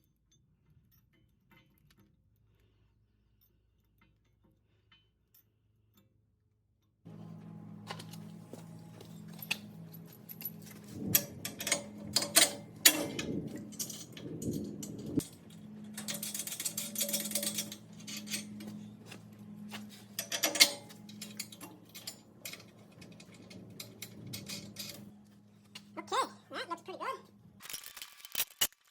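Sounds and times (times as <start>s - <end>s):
tools and hardware clanking: 7.1s - 26.1s, 27.2s - 28.9s
low hum: 7.1s - 26.5s.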